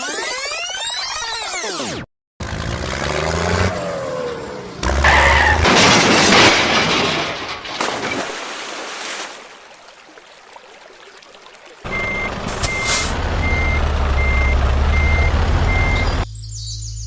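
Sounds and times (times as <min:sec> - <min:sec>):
glass shattering: 0:05.1 - 0:08.4.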